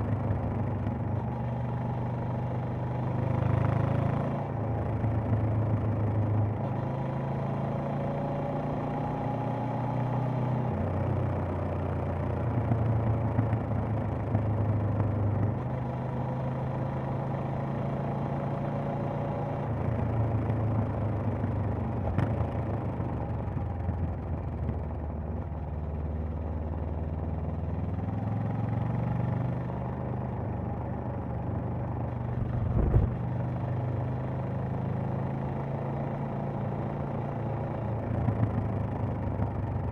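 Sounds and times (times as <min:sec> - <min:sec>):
motorcycle engine running: 0:00.0 - 0:39.9
short low thump: 0:32.3 - 0:33.4.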